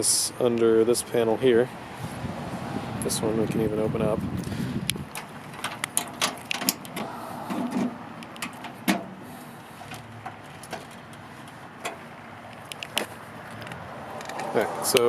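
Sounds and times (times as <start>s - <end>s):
metal panel clicks and rattles: 5.1s - 9.2s.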